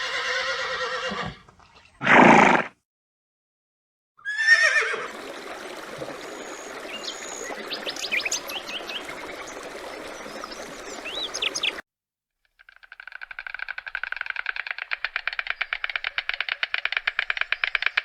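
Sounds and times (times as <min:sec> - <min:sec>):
horse whinnying: 0:00.0 - 0:02.7, 0:04.2 - 0:05.2
small birds chirping: 0:05.7 - 0:11.8.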